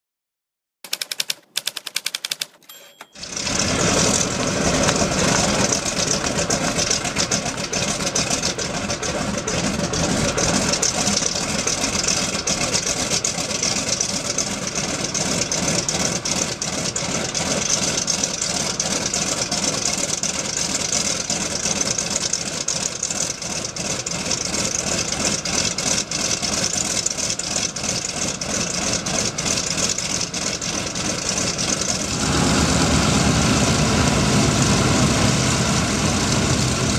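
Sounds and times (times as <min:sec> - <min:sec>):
radial piston engine starting: 0:00.9 - 0:27.6.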